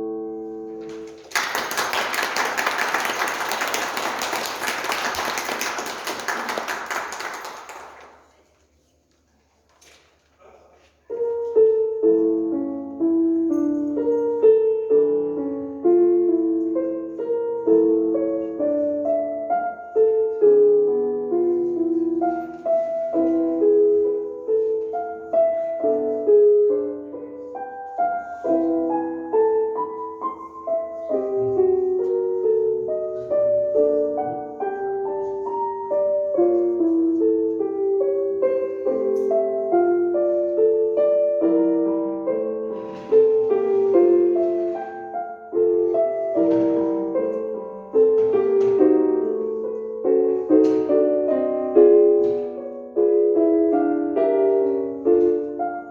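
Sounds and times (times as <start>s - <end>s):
piano piece: 0.0s - 8.8s, 10.4s - 55.9s.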